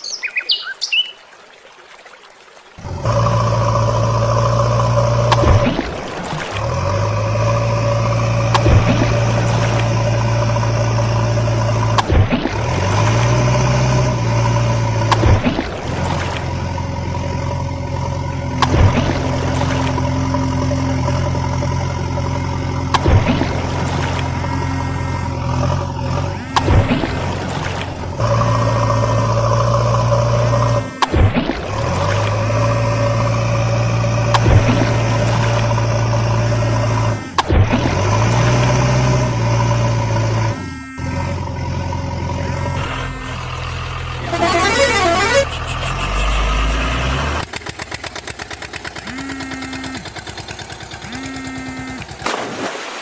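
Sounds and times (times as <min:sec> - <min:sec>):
toy vehicle engine drone: 0:23.8 - 0:27.3, 0:28.1 - 0:31.2, 0:35.5 - 0:52.3.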